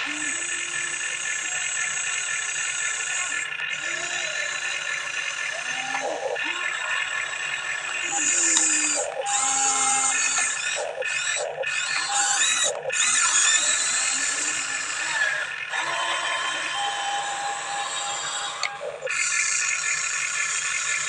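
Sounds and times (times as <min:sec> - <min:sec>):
toy excavator motors whining: 0:00.0 - 0:21.0.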